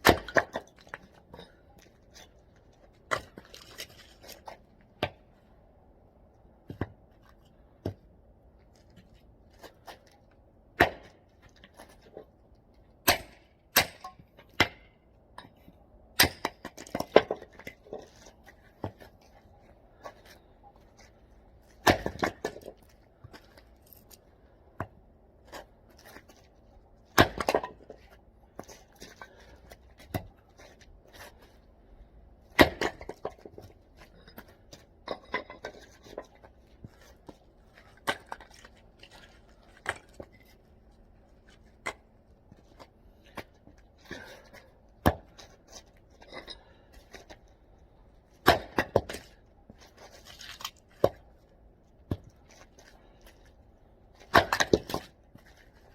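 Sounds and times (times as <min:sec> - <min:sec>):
hatchet chopping firewood: 0:00.0 - 0:01.5, 0:10.7 - 0:11.8, 0:13.0 - 0:19.1, 0:21.7 - 0:24.2, 0:27.1 - 0:30.4, 0:32.4 - 0:39.2, 0:44.1 - 0:45.6, 0:48.4 - 0:49.4, 0:52.0 - 0:52.4, 0:54.2 - 0:55.5.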